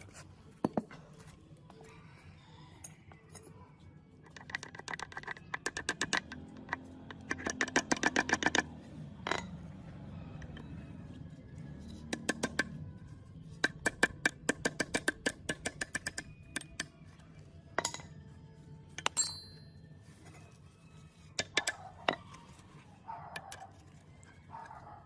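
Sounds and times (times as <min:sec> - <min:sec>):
metal parts clicking and clinking: 0:04.2 - 0:09.7, 0:17.8 - 0:18.3, 0:18.9 - 0:19.8, 0:21.4 - 0:22.6
dog barking: 0:21.6 - 0:22.3, 0:23.0 - 0:23.8, 0:24.5 - 0:25.0.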